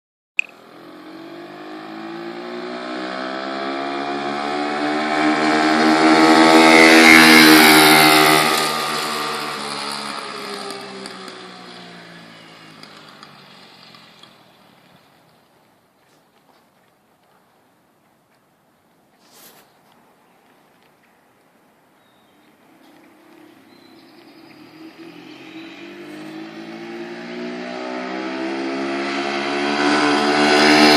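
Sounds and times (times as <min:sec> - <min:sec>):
small motorbike engine passing: 0:00.6 - 0:15.6, 0:22.2 - 0:30.9.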